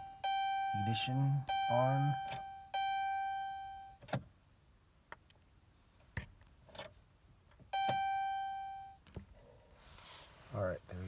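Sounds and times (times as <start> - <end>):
dashboard warning chime: 0.0 - 4.0, 7.7 - 9.0.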